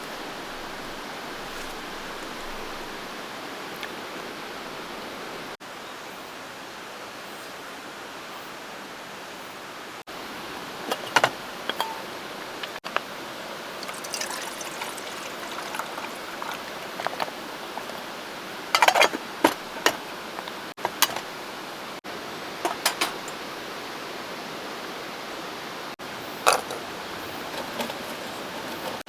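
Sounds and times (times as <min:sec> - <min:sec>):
camp cookware clicks and knocks: 0:10.8 - 0:13.0, 0:13.8 - 0:18.1, 0:18.7 - 0:21.4, 0:22.6 - 0:23.4, 0:26.4 - 0:29.0
water pouring and trickling: 0:10.8 - 0:21.2.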